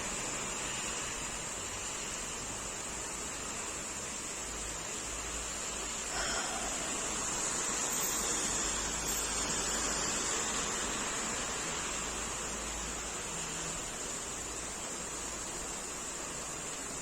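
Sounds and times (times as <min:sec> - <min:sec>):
steady rain hiss: 0:00.0 - 0:17.0.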